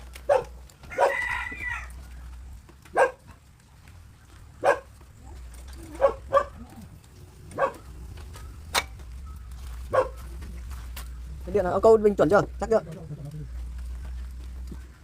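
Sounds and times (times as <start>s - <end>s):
dog barking: 0.2s - 1.4s, 2.9s - 3.4s, 4.6s - 5.0s, 5.9s - 6.8s, 7.5s - 7.9s, 9.9s - 10.3s.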